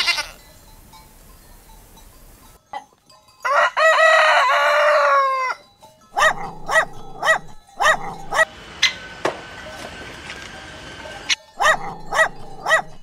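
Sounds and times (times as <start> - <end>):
rooster crowing: 3.4 - 5.6.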